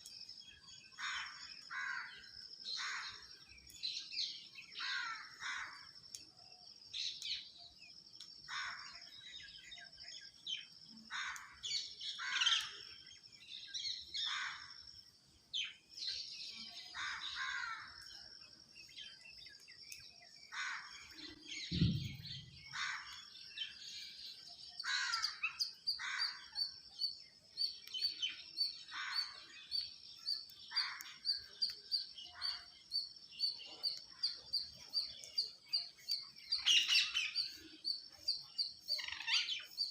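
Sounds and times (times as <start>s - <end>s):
birds chirping and calling: 0.0s - 39.9s
low thud: 21.7s - 22.5s.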